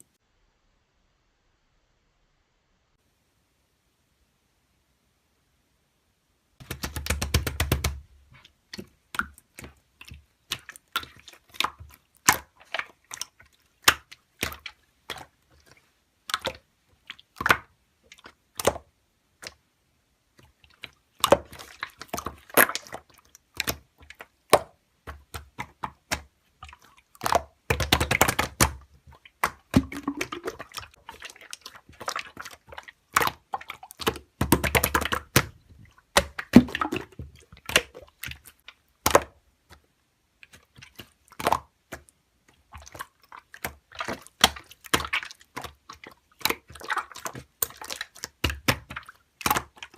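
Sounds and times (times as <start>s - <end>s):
slime squelching and popping: 6.6s - 49.9s
slime crackling: 20.4s - 39.4s.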